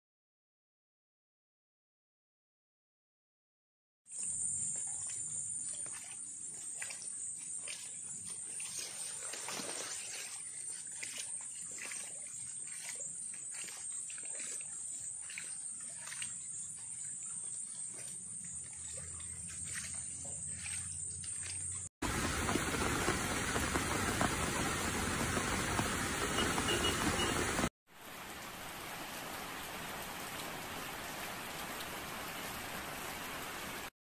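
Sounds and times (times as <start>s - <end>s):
water splashes and drips: 4.2s - 33.9s
heavy rain hiss: 22.0s - 33.9s.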